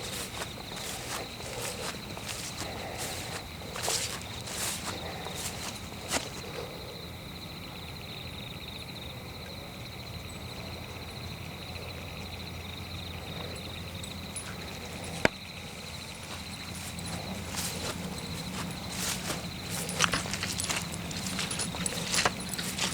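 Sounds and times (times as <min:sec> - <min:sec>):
footsteps on forest floor: 0:00.0 - 0:06.7, 0:15.1 - 0:22.9
insect chorus: 0:00.0 - 0:22.9.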